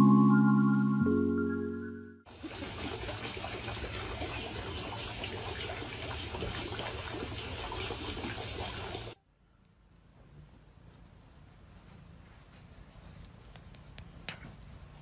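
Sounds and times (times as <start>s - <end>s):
running water splashing trickle: 2.3s - 9.2s.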